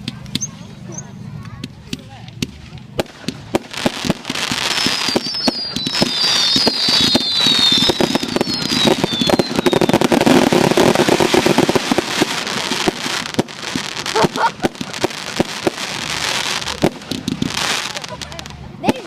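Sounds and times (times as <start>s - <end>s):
fireworks crackling bangs: 1.4s - 19.0s
falling firework whistles: 3.5s - 18.0s.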